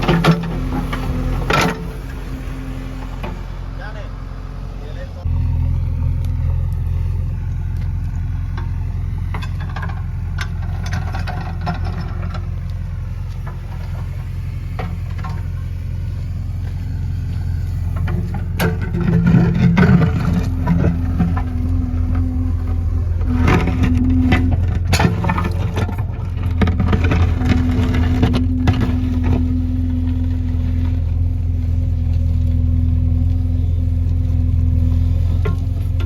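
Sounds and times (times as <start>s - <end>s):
diesel engine running: 0.0s - 36.0s
metal clanks and knocks: 9.3s - 12.6s, 17.9s - 31.1s.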